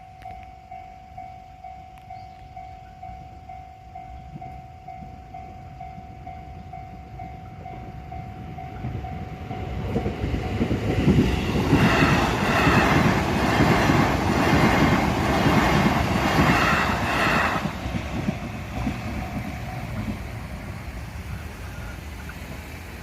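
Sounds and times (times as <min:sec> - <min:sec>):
train wheels clattering: 0:04.2 - 0:21.0.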